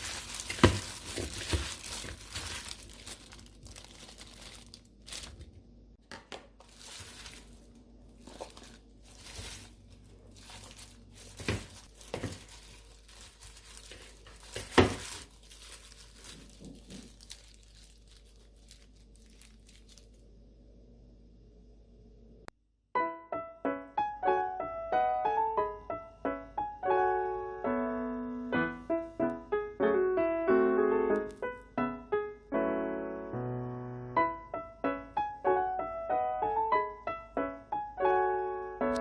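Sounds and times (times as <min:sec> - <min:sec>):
crinkling and rustling: 0:00.0 - 0:20.4.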